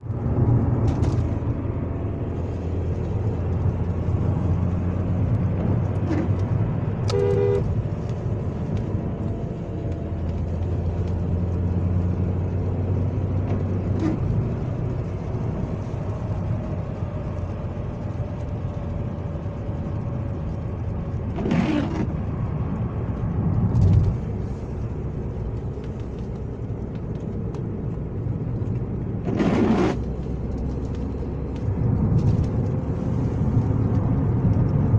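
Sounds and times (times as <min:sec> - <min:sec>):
car engine humming: 0:00.0 - 0:34.9
two-tone car horn: 0:07.1 - 0:07.7.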